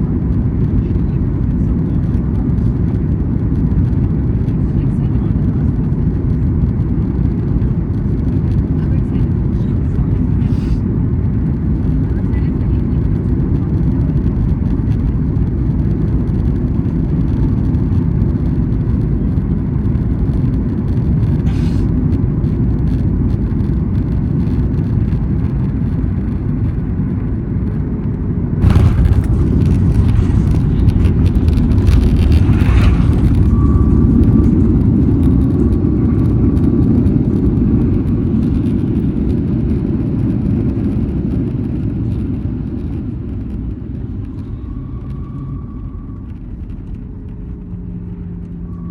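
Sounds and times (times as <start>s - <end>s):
jet cabin rumble: 0.0s - 48.9s
jolt of plane touchdown: 28.6s - 36.0s.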